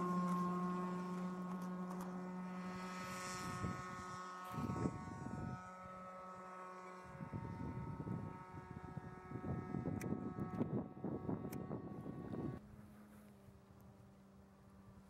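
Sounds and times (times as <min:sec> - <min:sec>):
model plane motor and propeller drone: 0:00.0 - 0:15.0
wind gusts on microphone: 0:02.8 - 0:05.7, 0:07.0 - 0:12.6.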